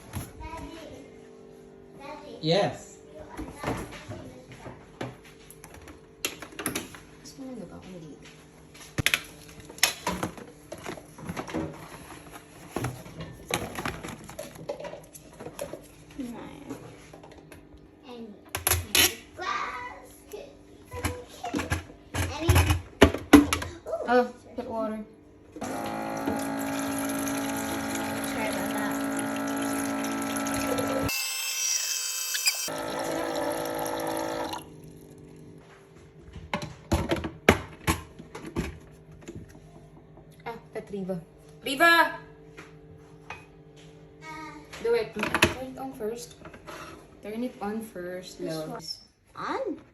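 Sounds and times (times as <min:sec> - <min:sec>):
electric water pump humming: 0:25.6 - 0:35.6.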